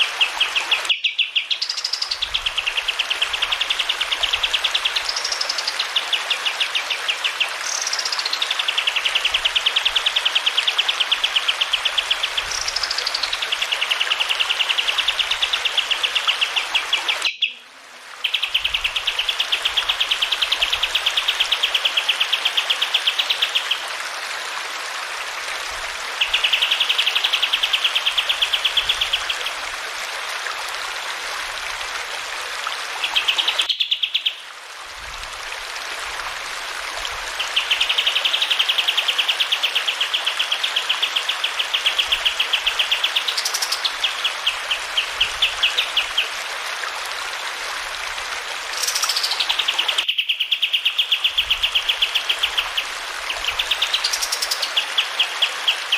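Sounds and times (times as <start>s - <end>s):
running water: 0.0s - 55.9s.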